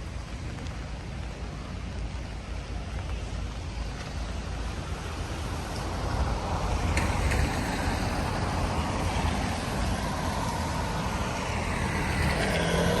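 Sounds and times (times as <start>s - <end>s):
low traffic rumble: 0.0s - 13.0s
tyres on a wet road: 0.0s - 13.0s
vehicle engine hum: 0.1s - 13.0s
rain hissing: 6.4s - 13.0s.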